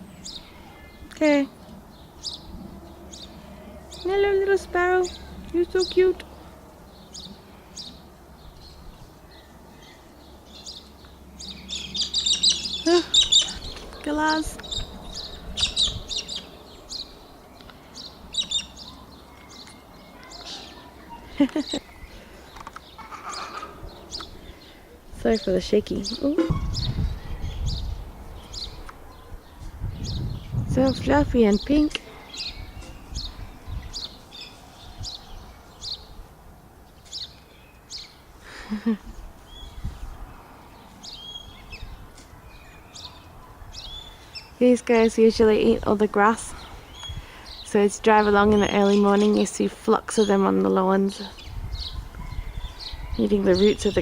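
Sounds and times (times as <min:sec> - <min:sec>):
birds shrill chirping calls: 0:00.0 - 0:54.0
outdoor background noise: 0:00.0 - 0:54.0.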